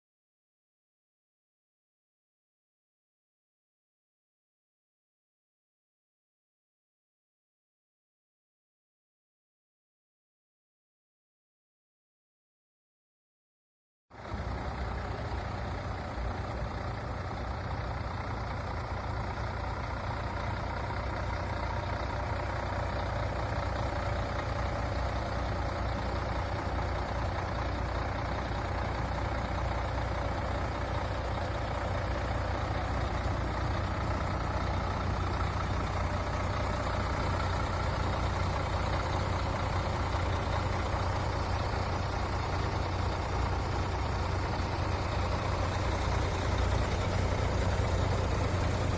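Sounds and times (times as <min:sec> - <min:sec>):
diesel truck idling: 0:14.2 - 0:48.9.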